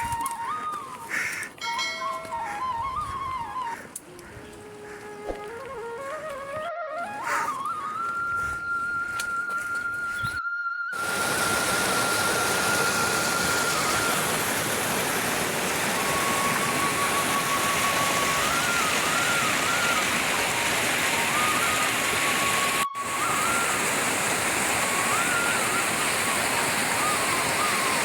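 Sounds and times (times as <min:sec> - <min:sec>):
faint thin melody: 0:00.0 - 0:28.0
flowing water rushing: 0:11.0 - 0:28.0.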